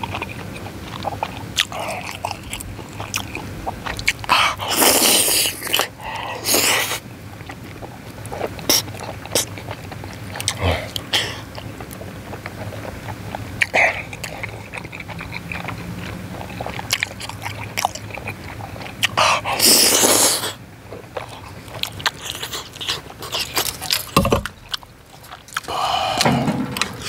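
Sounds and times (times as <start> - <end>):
mouth clicks and smacks: 0.0 - 20.6
wet chewing: 0.0 - 27.0
loud breathy rush: 25.7 - 26.6.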